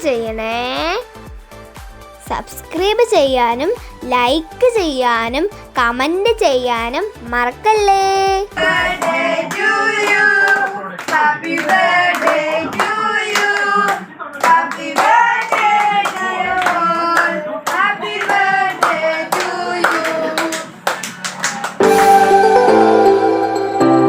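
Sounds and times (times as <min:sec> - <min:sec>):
hands clapping in rhythm: 0:00.0 - 0:21.8
voices singing together: 0:06.9 - 0:20.8.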